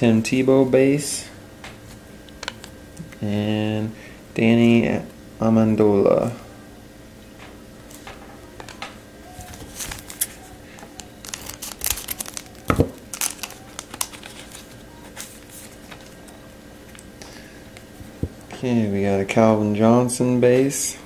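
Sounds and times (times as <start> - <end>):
wrapper tearing and crinkling: 9.4 - 16.2.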